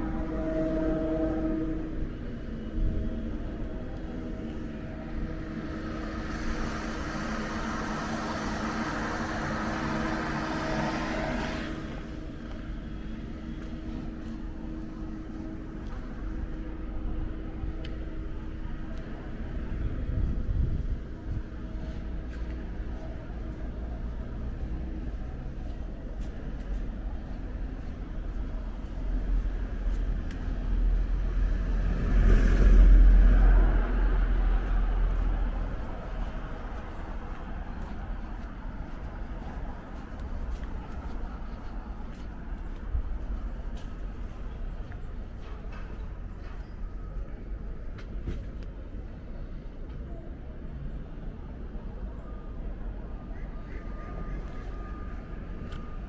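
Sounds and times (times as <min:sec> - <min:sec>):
low rumble: 0:00.0 - 0:49.4
steady low hum: 0:00.0 - 0:49.8
vehicle passing close by: 0:05.0 - 0:12.1, 0:31.0 - 0:38.4.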